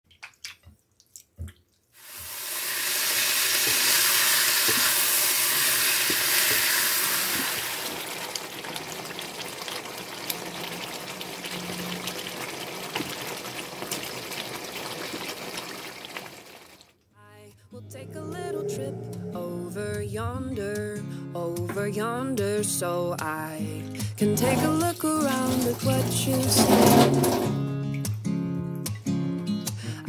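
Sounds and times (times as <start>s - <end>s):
food sizzling in hot oil: 2.0s - 16.8s, 24.4s - 27.5s.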